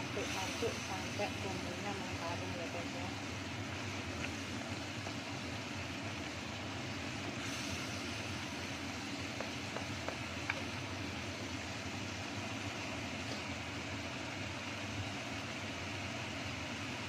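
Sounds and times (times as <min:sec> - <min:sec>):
paste sizzling in a wok: 0:00.0 - 0:17.0
wooden spatula tapping wok: 0:09.2 - 0:10.7.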